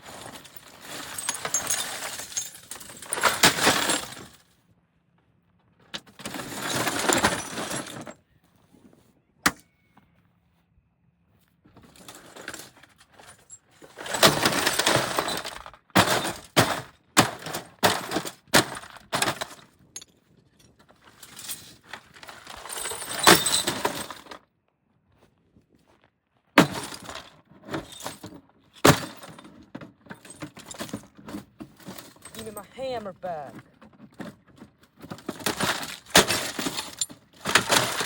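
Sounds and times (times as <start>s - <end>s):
glass breaking and shattering: 0.2s - 4.2s, 22.5s - 24.2s, 35.3s - 38.0s
crunching glass: 35.3s - 38.0s.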